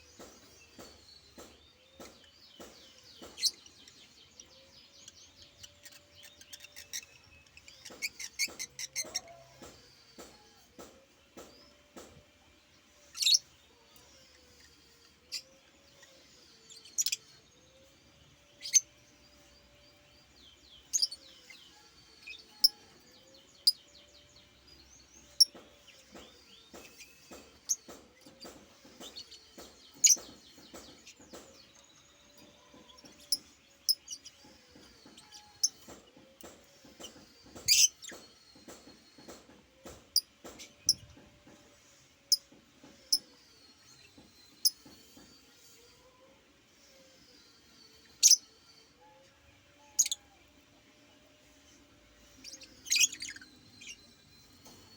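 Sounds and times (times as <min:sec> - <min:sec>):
bird chirping: 0:00.0 - 0:12.1, 0:13.0 - 0:41.6, 0:51.4 - 0:54.9
soft bird twittering: 0:13.0 - 0:41.2, 0:46.8 - 0:49.1, 0:51.5 - 0:54.9.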